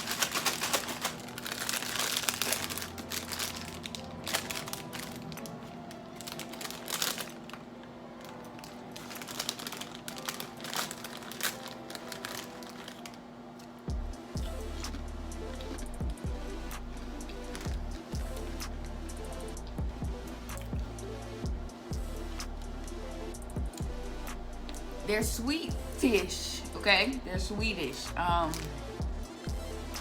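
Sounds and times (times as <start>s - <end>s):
plastic snack bag crinkling: 0.0s - 13.8s, 17.2s - 17.8s, 28.0s - 28.8s.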